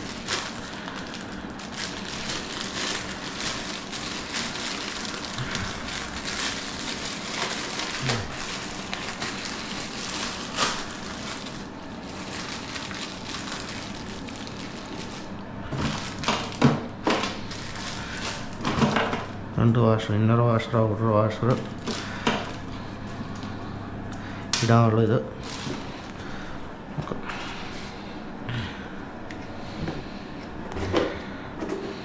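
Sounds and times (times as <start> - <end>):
plastic crinkling and rustling: 0.0 - 19.2, 21.6 - 23.6, 25.3 - 26.3.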